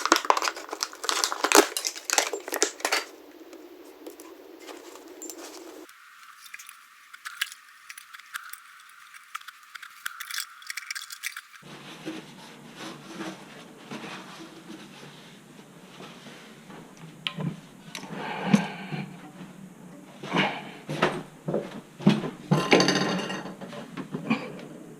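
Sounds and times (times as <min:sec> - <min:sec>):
small parts clicking and scraping: 0:00.0 - 0:11.7.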